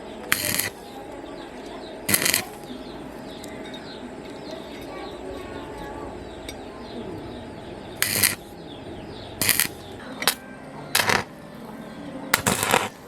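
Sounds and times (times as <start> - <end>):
harsh hissing bursts from tool: 0.3 - 0.8, 2.1 - 2.6, 8.0 - 8.5, 9.4 - 9.8.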